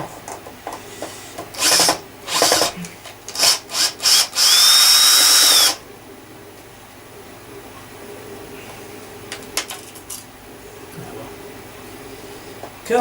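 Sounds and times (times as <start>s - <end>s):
cordless drill motor whine: 1.5s - 5.8s.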